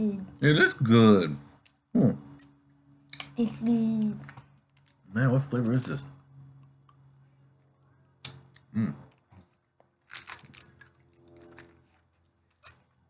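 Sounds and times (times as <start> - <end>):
wet mouth clicks: 8.2 - 8.7.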